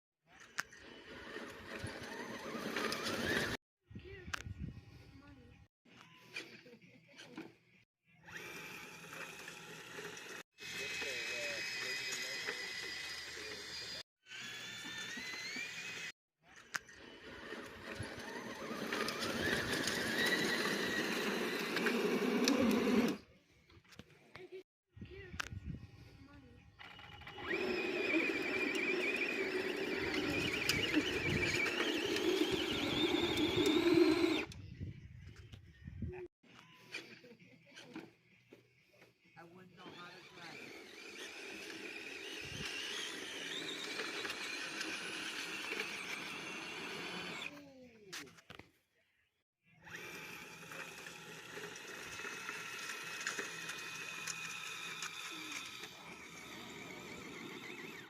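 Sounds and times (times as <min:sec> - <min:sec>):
toy truck motor whining: 0:00.3 - 0:03.6, 0:08.1 - 0:23.3, 0:26.8 - 0:34.6, 0:39.4 - 0:47.6, 0:49.7 - 0:58.0.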